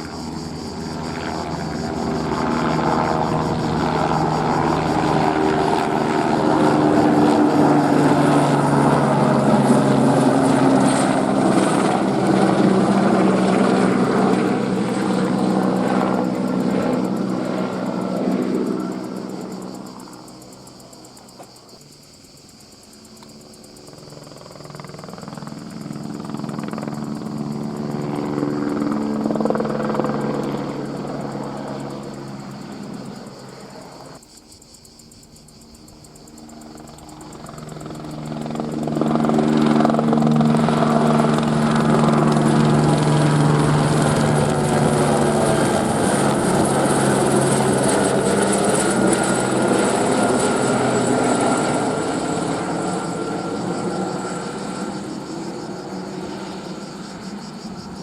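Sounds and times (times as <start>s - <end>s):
helicopter flying past: 0.0s - 21.8s, 22.8s - 34.2s, 35.4s - 58.0s.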